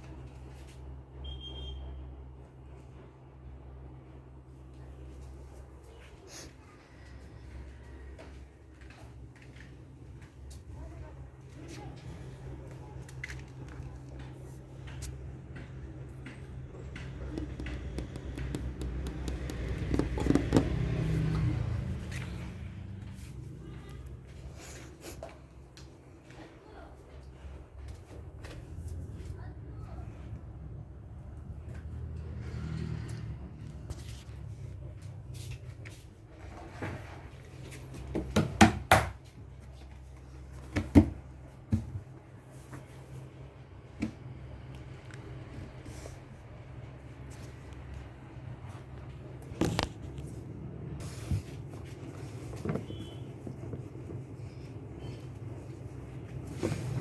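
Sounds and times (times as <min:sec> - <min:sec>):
vehicle engine hum: 0:06.8 - 0:25.6, 0:28.2 - 0:38.1
small clicks and taps: 0:14.9 - 0:20.8
sharp knocks and clatters: 0:16.2 - 0:21.0.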